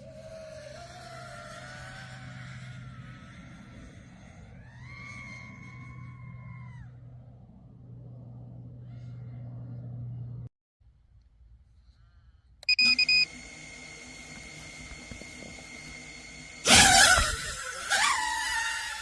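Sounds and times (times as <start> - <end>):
low steady hum: 0.0 - 18.6
short beeps from motors: 12.6 - 13.4
high motor whine: 12.6 - 19.0.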